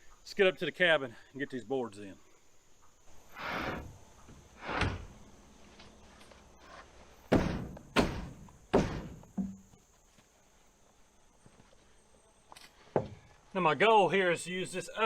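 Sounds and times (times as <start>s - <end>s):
wooden board scraping: 3.2s - 5.3s
wooden boards thunking: 3.5s - 5.2s, 7.2s - 9.8s.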